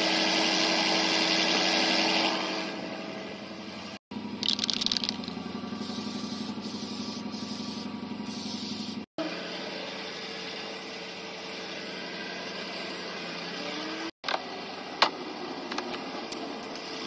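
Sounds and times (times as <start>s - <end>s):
car engine idling: 4.2s - 8.4s.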